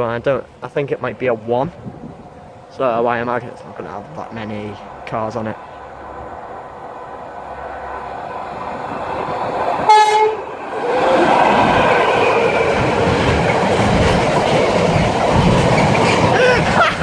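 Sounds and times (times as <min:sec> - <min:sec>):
locomotive rumble: 0:00.0 - 0:17.0
train wagons rushing past: 0:00.0 - 0:17.0
train horn blast: 0:09.9 - 0:10.5.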